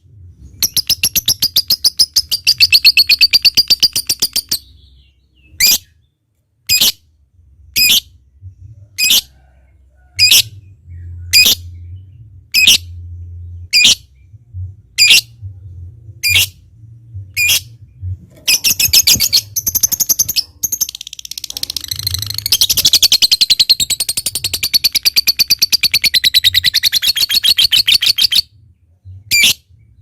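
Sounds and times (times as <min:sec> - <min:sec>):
lovebird squawking and chirping: 0:05.6 - 0:05.9, 0:06.7 - 0:07.0, 0:11.3 - 0:11.6, 0:12.6 - 0:12.8, 0:13.7 - 0:14.1, 0:16.2 - 0:16.6, 0:17.4 - 0:17.7, 0:18.4 - 0:28.5, 0:29.3 - 0:29.6.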